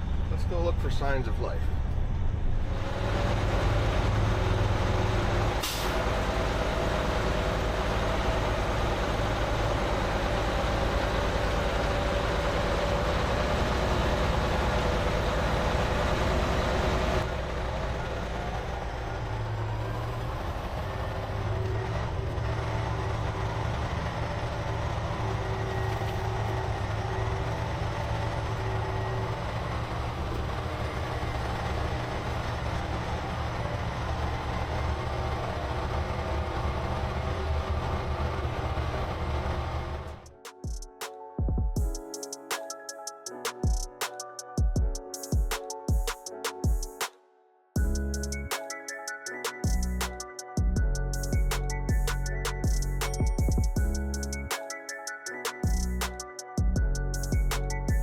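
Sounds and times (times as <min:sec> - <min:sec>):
diesel truck engine running: 0:00.0 - 0:40.4, 0:49.7 - 0:54.6.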